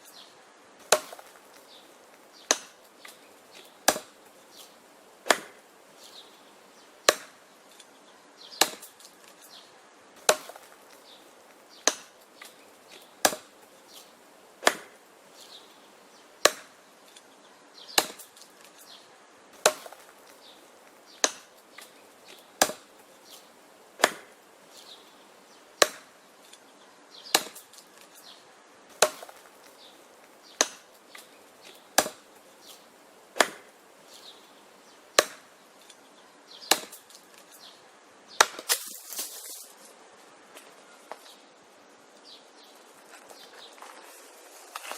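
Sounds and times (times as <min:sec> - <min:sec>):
wood chopping blows: 0:00.8 - 0:04.2, 0:05.2 - 0:05.6, 0:07.0 - 0:07.4, 0:08.6 - 0:09.5, 0:10.2 - 0:11.0, 0:11.8 - 0:14.0, 0:14.6 - 0:15.0, 0:16.4 - 0:17.2, 0:17.9 - 0:18.8, 0:19.6 - 0:24.4, 0:25.8 - 0:26.2, 0:27.3 - 0:28.2, 0:28.9 - 0:29.8, 0:30.5 - 0:33.7, 0:35.2 - 0:35.5, 0:36.6 - 0:37.6.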